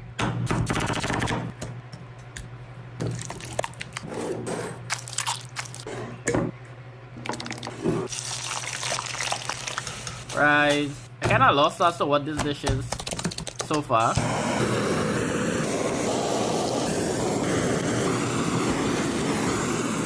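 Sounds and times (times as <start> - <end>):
clicks and taps: 12.4 - 13.9.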